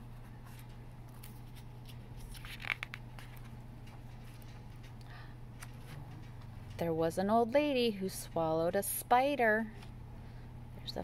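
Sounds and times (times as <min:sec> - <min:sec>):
steady low hum: 0:00.0 - 0:11.0
page turning rustle: 0:00.4 - 0:04.8.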